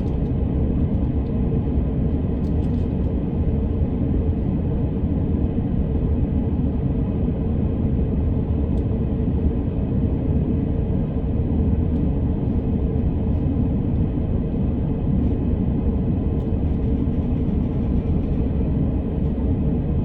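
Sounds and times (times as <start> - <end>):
train wheels rumbling on rails: 16.1 - 19.8.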